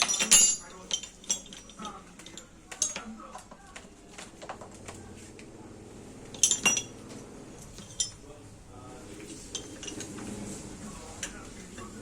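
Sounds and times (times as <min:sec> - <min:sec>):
metal tools clinking: 0:00.0 - 0:03.4, 0:06.3 - 0:08.3, 0:09.2 - 0:12.0.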